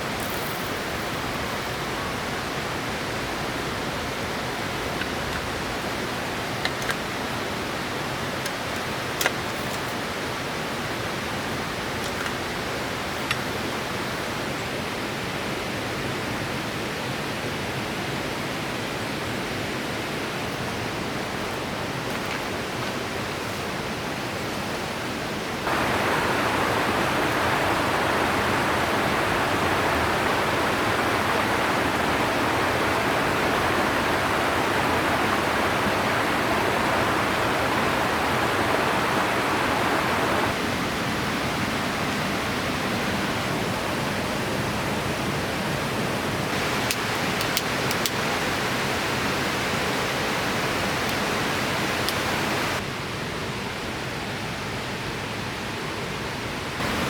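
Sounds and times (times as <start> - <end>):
river water rushing over rocks: 19.2 - 52.9, 56.8 - 57.0.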